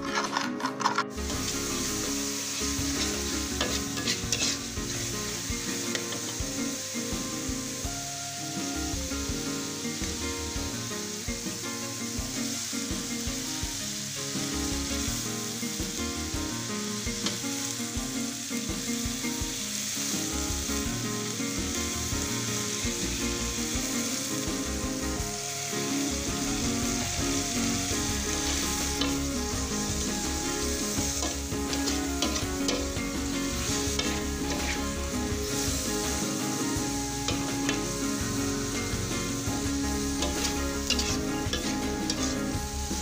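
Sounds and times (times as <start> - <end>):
metal spatula scraping pan: 0.0 - 5.2, 27.3 - 36.3, 39.6 - 42.8
shrimp sizzling in a wok: 0.0 - 43.0.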